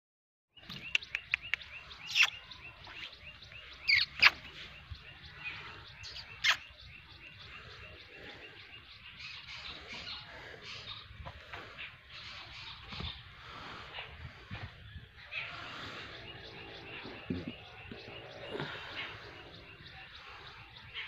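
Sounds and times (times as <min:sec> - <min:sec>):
bird calls sweeping downward: 0:00.6 - 0:11.1
small birds chirping: 0:00.6 - 0:21.0
sharp clicks: 0:00.7 - 0:02.3.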